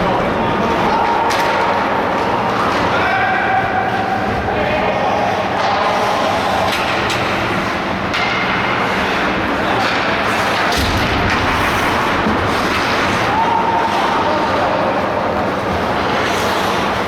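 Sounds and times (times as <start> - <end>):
skates scraping on ice: 5.8 - 14.7, 15.6 - 17.0
hockey sticks and puck knocking: 6.7 - 13.3.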